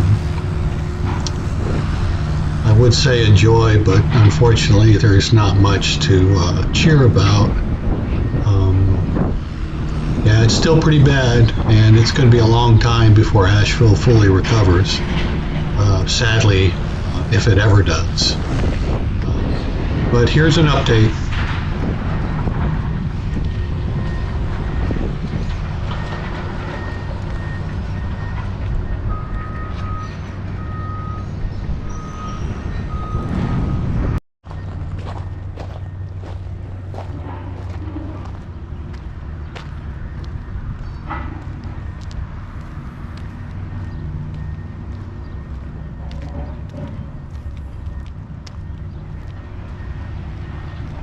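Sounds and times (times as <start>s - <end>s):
large engine rumbling: 0.0s - 51.0s.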